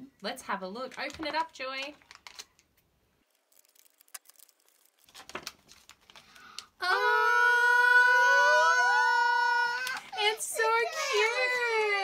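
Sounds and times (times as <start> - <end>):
foil bag crinkling: 0.9 - 2.6, 3.2 - 6.6.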